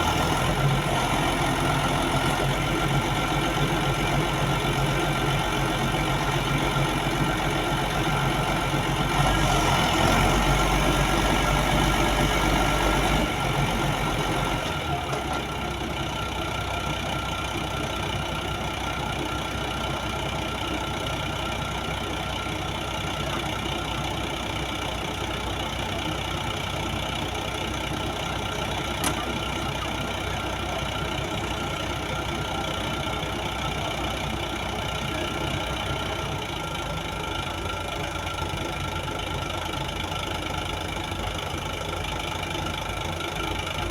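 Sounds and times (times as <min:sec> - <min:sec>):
crane diesel engine running: 0:00.0 - 0:43.9.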